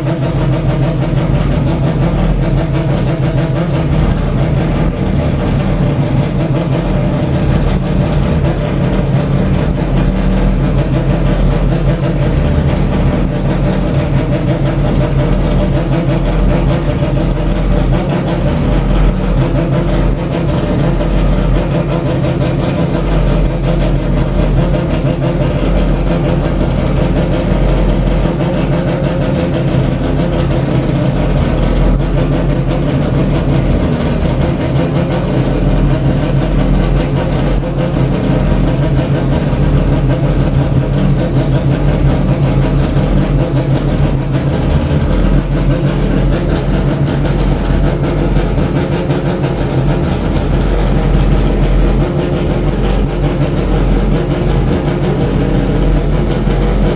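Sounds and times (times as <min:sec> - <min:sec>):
rotary racing engine idling: 0:00.0 - 0:56.9.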